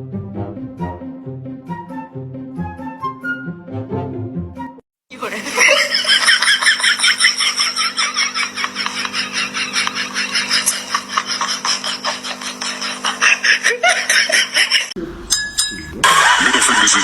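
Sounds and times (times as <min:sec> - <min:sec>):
steady low hum: 0:05.4 - 0:17.0.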